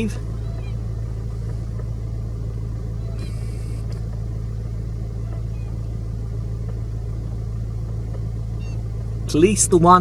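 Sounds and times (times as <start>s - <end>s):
faint chirps: 0.0s - 1.9s, 2.6s - 4.0s
low motor hum: 0.0s - 10.0s.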